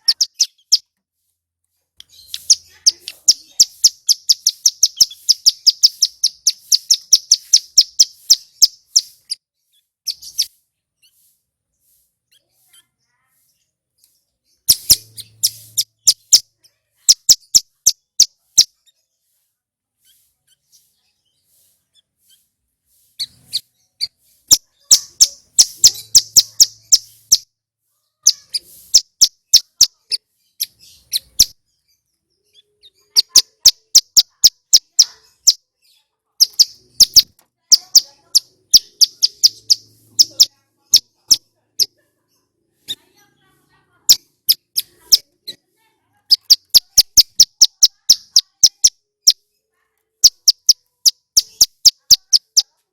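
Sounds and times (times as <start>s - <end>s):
bird clicking chirps: 0.0s - 0.9s, 2.0s - 9.4s, 14.0s - 16.4s, 17.1s - 18.4s, 24.5s - 27.5s, 28.3s - 31.6s, 33.1s - 35.6s, 36.4s - 41.4s, 46.3s - 49.4s, 50.2s - 52.7s.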